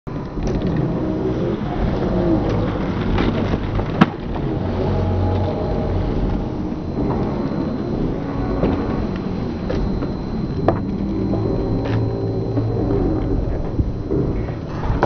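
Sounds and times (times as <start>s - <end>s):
skateboard wheels rolling on pavement: 0.1s - 15.0s
skateboard clack: 1.8s - 4.4s.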